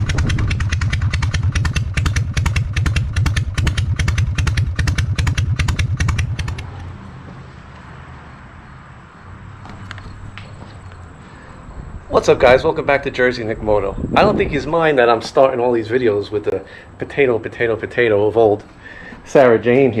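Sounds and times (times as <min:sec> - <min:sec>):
motorcycle engine idling: 0:00.0 - 0:06.8
low hum: 0:00.0 - 0:07.2.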